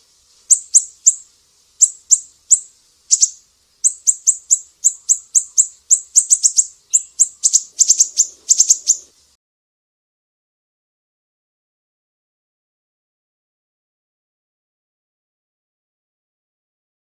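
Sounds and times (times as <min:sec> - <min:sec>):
songbird high piercing chips: 0:00.4 - 0:09.1.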